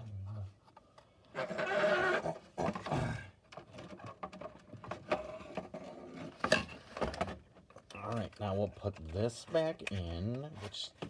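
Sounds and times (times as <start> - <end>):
person groaning: 2.8 - 3.4.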